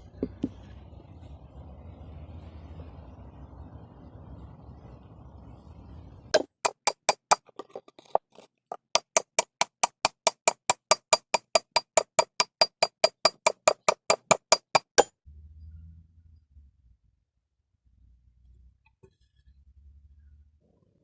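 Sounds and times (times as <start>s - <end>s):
hammer strikes on metal: 6.4s - 7.7s, 8.7s - 15.1s.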